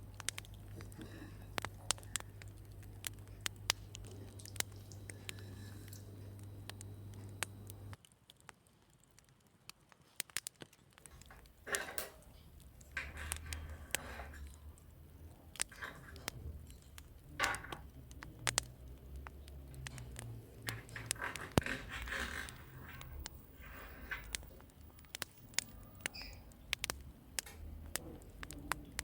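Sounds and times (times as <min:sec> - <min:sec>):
low hum: 0:00.0 - 0:08.0
sharp clicks and taps: 0:00.0 - 0:08.0, 0:15.5 - 0:29.0
scraping and rustling: 0:11.0 - 0:29.0.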